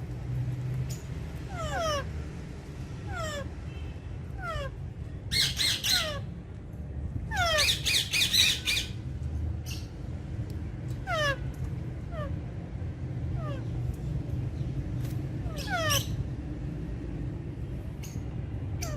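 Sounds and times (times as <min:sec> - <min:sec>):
parakeets screeching: 0:00.9 - 0:02.2, 0:03.0 - 0:03.6, 0:04.3 - 0:06.3, 0:07.3 - 0:09.0, 0:11.0 - 0:11.4, 0:15.4 - 0:16.3, 0:18.0 - 0:18.9
parakeet squawks: 0:01.5 - 0:02.2, 0:03.1 - 0:06.3, 0:07.3 - 0:09.0, 0:15.4 - 0:16.2.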